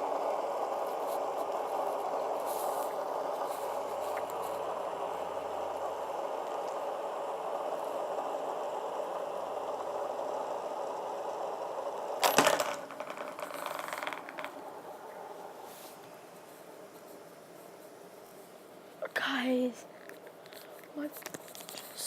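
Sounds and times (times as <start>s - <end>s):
fidget spinners whirring: 0.0s - 18.8s, 19.4s - 22.0s
rattle: 12.0s - 16.0s
loud clatter: 12.2s - 14.9s.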